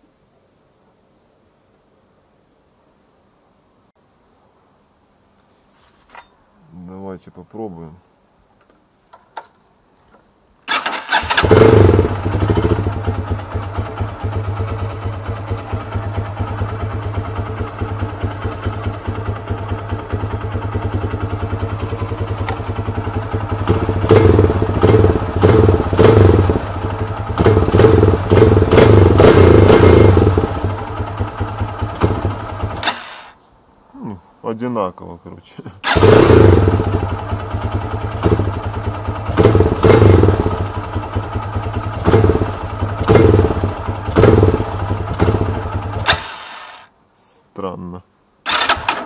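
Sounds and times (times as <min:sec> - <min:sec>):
motorcycle engine idling and revving: 0:10.7 - 0:33.4, 0:35.8 - 0:46.9.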